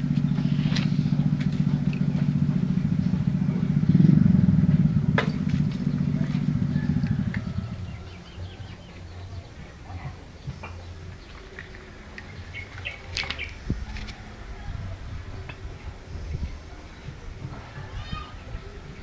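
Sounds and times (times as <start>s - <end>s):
small engine running: 0.0s - 14.5s.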